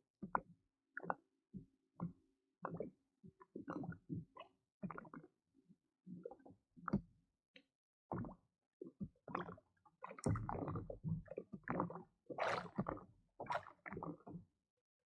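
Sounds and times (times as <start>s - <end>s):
water sloshing against kayak hull: 10.2s - 11.0s.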